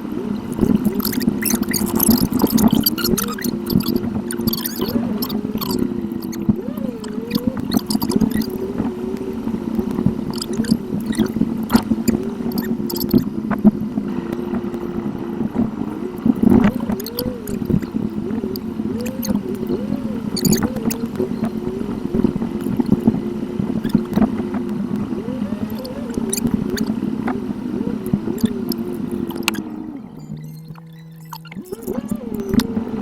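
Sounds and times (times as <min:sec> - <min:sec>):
car engine: 0:00.0 - 0:33.0
road noise inside car: 0:00.0 - 0:33.0.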